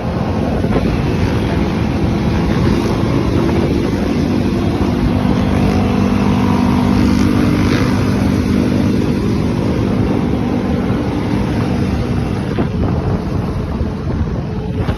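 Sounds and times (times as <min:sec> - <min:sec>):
quad engine running: 0:00.0 - 0:14.9
wind noise on microphone: 0:00.0 - 0:14.9.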